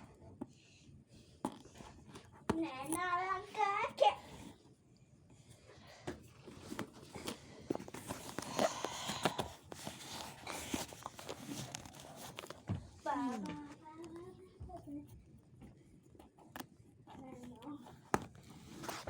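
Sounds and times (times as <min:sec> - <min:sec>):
fabric bag rustling: 0:06.6 - 0:13.5.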